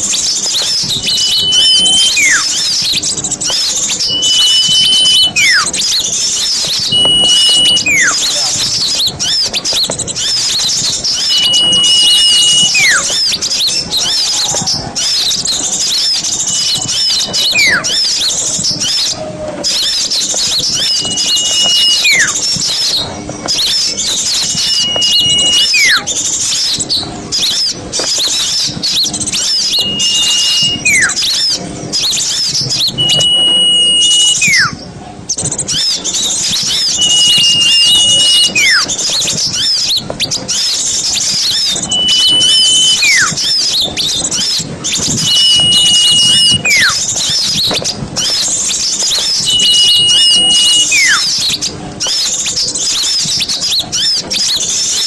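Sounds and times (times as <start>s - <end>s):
small birds chirping: 0.0s - 55.0s
long whistle sliding down: 0.6s - 2.6s, 3.9s - 5.7s, 6.6s - 8.2s, 11.2s - 13.2s, 16.5s - 18.0s, 20.6s - 22.4s, 24.3s - 26.1s, 29.4s - 31.4s, 32.8s - 34.8s, 36.4s - 38.9s, 41.5s - 43.5s, 44.9s - 47.0s, 49.1s - 51.4s.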